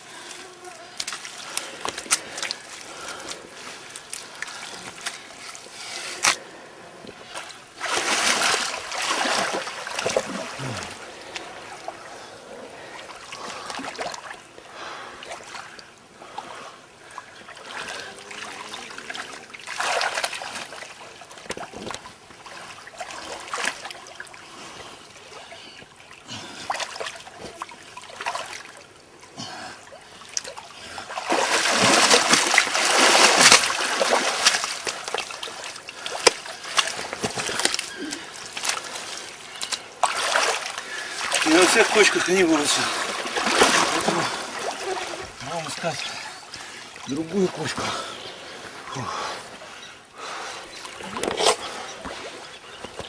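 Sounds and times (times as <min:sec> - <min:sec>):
water splashing and trickling: 0:00.0 - 0:53.0.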